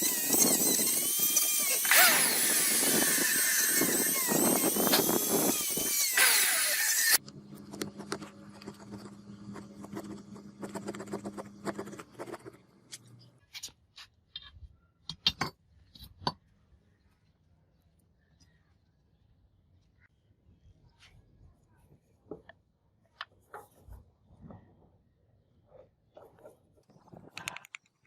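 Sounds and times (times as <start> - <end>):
power tool stopping: 0.0 - 10.2
small clicks: 27.3 - 28.0.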